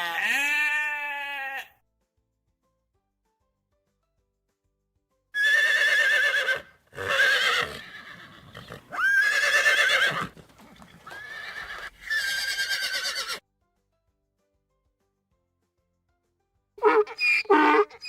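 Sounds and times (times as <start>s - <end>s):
horse whinnying: 5.4s - 13.4s, 16.8s - 18.0s.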